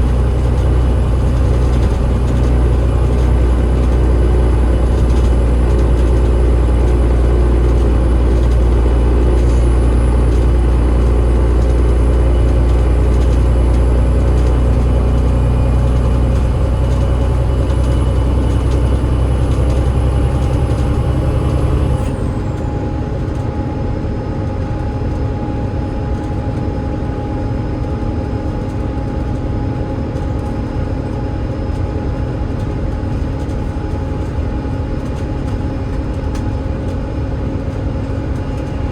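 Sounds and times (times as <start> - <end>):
gearbox whine: 0.0 - 28.5
diesel bus engine drone: 0.0 - 38.9.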